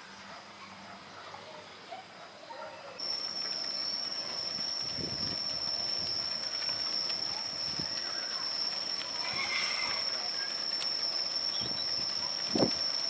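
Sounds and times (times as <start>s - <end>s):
insect droning: 3.0s - 13.0s.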